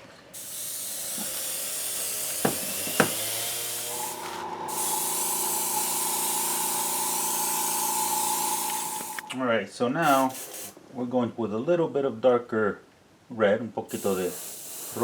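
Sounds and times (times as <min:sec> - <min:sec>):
spray paint hissing: 0:00.4 - 0:09.4, 0:10.0 - 0:10.8, 0:13.9 - 0:15.0
steady humming tone: 0:00.4 - 0:09.4.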